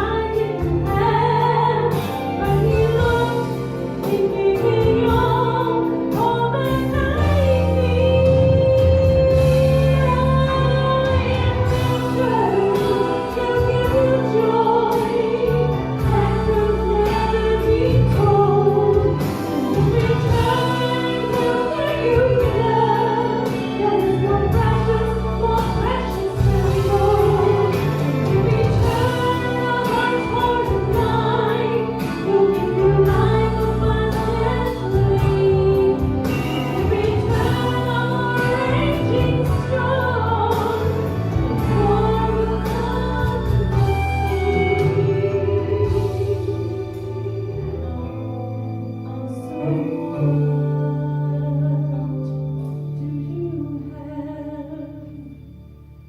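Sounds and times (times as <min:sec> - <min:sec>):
instrumental backing: 0:00.0 - 0:56.0
choir singing gospel: 0:17.0 - 0:46.7.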